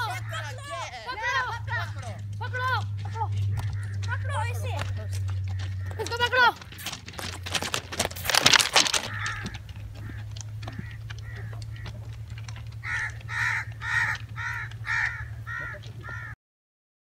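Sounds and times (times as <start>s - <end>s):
crow cawing: 0.0s - 6.8s, 8.3s - 16.4s
low hum: 0.0s - 16.4s.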